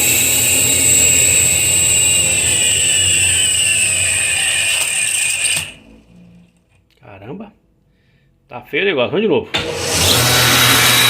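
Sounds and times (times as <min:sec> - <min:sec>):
alternator high whine: 0:00.0 - 0:06.7
low hum: 0:00.0 - 0:06.8.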